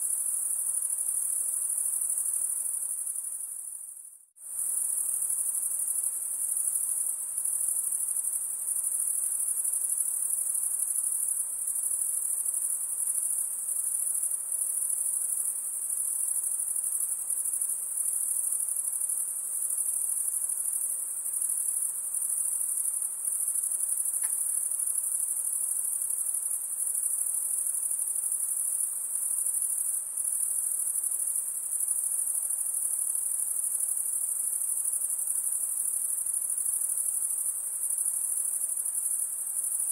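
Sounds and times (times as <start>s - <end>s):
insect chorus trilling: 0.0s - 39.9s.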